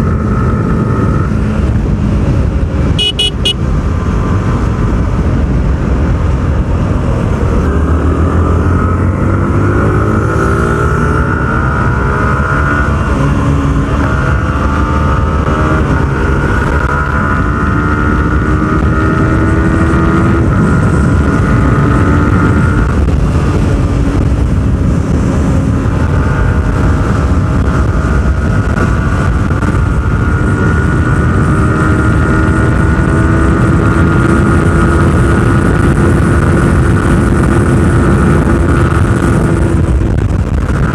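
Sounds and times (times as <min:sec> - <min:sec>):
motorcycle engine accelerating: 0:00.0 - 0:40.9
wind rush on microphone: 0:00.0 - 0:40.9.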